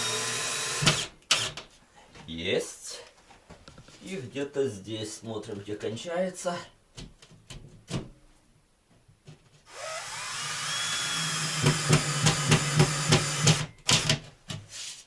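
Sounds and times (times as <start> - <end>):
cordless drill whining: 0.0 - 1.5, 9.7 - 14.1.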